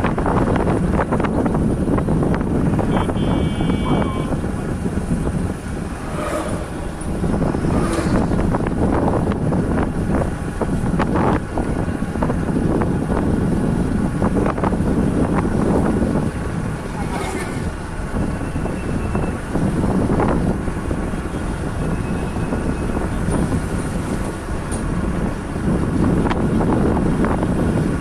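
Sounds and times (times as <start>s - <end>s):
bike low rumble: 0.0s - 17.9s
wind buffeting microphone: 0.0s - 28.0s.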